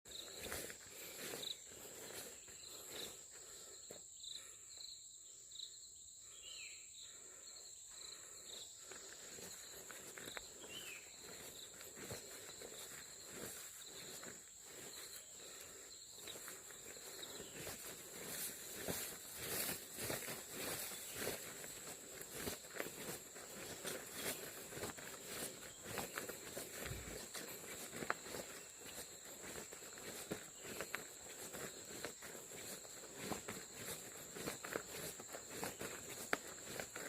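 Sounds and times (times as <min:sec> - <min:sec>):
footsteps on dirt path: 0:00.0 - 0:04.5, 0:08.1 - 0:37.0
insect chirps: 0:00.1 - 0:37.0
insects buzzing: 0:00.1 - 0:37.0.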